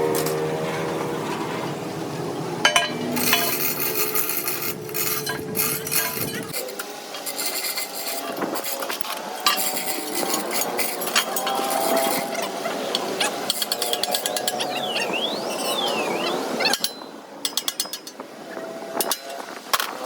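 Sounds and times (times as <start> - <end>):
metal tools scraping and clinking: 0.0 - 1.6, 2.6 - 14.7, 16.7 - 18.2.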